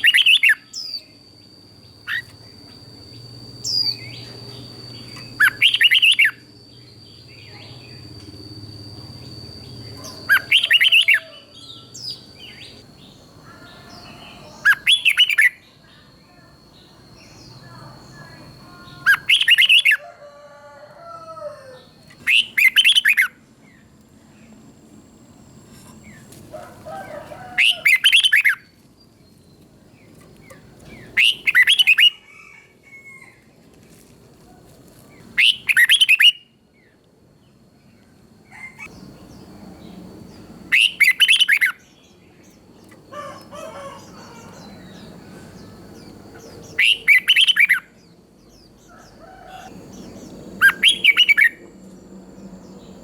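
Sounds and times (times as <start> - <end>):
bird song phrases: 0.0 - 24.6, 27.0 - 33.3, 35.2 - 53.0
soft bird chatter: 38.0 - 47.8.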